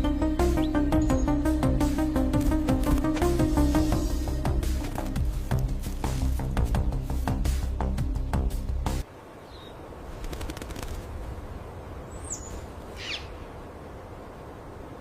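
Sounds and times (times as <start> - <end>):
percussive soundtrack music: 0.0 - 9.0
faint outdoor hiss: 0.0 - 15.0.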